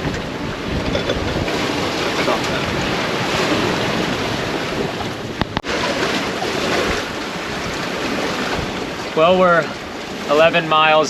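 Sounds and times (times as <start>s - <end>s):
wind buffeting microphone: 0.0s - 10.4s
waves washing past boat: 0.0s - 11.0s.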